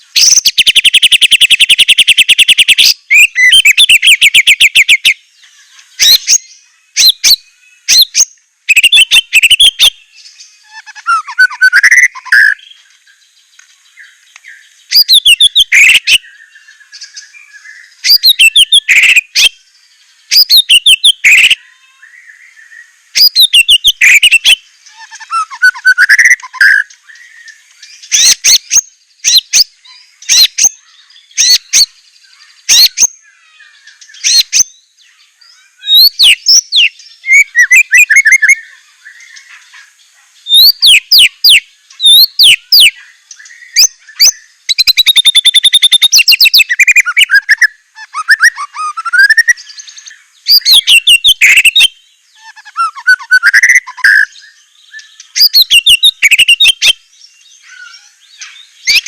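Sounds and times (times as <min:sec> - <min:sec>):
bird singing whistled phrases: 0:00.2 - 0:05.2, 0:06.0 - 0:12.8, 0:14.0 - 0:19.6, 0:20.3 - 0:32.0, 0:32.7 - 0:34.8, 0:35.8 - 0:39.5, 0:40.5 - 0:59.0.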